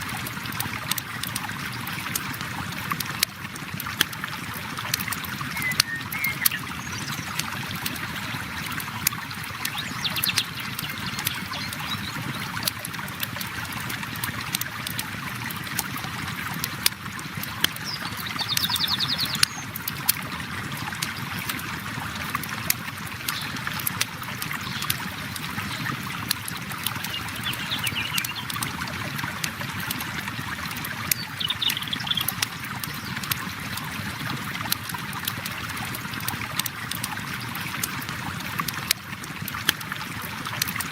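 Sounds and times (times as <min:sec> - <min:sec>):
river water flowing: 0:00.0 - 0:40.9
bird trills: 0:05.6 - 0:07.2, 0:27.2 - 0:28.5.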